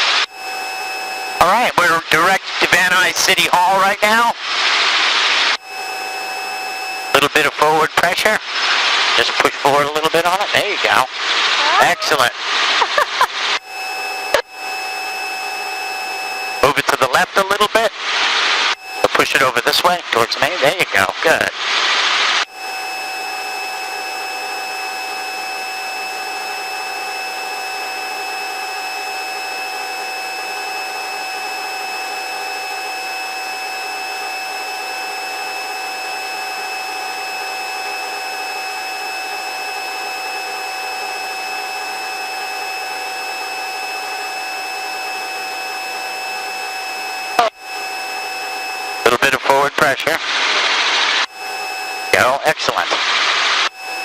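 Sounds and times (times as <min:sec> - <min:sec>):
helicopter cabin drone: 0:00.0 - 0:54.0
high-pitched whining tones: 0:00.0 - 0:54.0.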